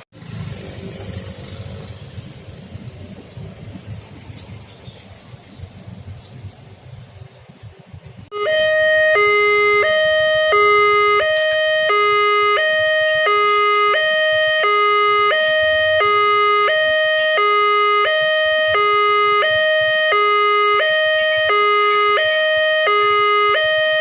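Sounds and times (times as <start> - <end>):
level crossing two-tone alarm: 8.3 - 24.0.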